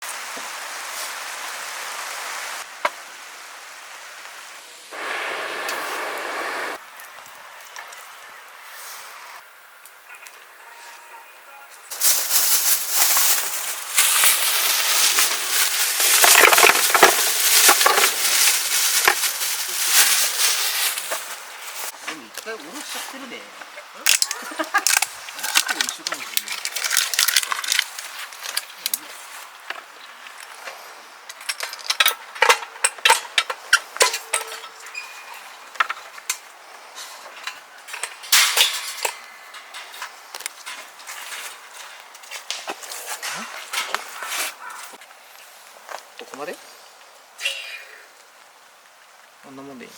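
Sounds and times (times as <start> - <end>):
campfire wood crackling and popping: 5.0 - 8.6, 11.9 - 34.9, 35.6 - 47.5
metal utensils and cookware clinking: 31.4 - 35.6, 37.3 - 40.9.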